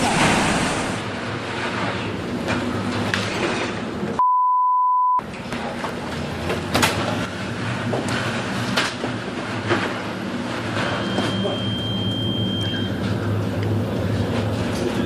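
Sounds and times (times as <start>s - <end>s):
censor bleep: 4.2s - 5.2s, 11.0s - 13.0s
rumbling din with low hum: 5.2s - 15.0s.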